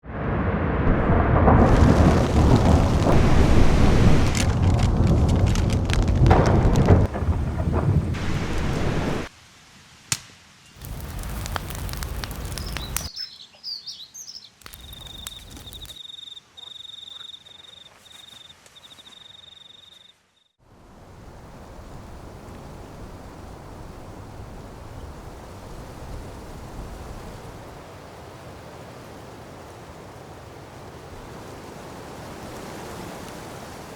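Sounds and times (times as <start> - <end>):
steady rushing noise: 0.0 - 9.3
heavy rain: 0.0 - 9.7, 10.8 - 13.1
high bird chirps: 12.6 - 20.1
high whistling call: 12.6 - 20.1.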